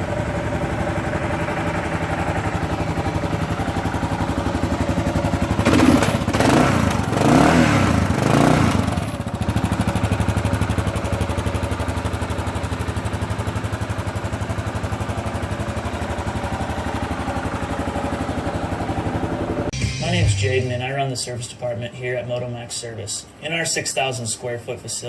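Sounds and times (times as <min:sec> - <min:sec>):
motorcycle engine revving and idling: 0:00.0 - 0:19.7.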